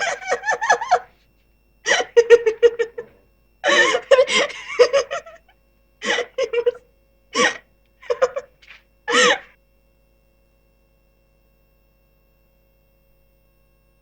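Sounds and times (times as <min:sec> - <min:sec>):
person laughing: 0:00.0 - 0:01.1, 0:01.9 - 0:06.8, 0:07.4 - 0:09.5.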